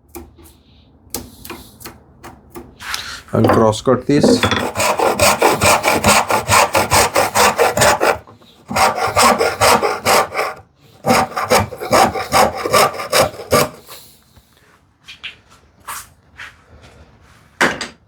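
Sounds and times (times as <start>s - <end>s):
hand saw cutting wood: 4.4s - 14.0s.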